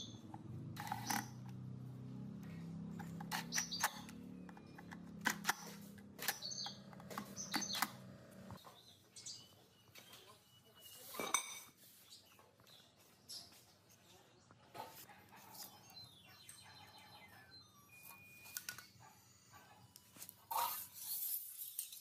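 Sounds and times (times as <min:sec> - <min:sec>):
low motor hum: 0:00.0 - 0:08.6.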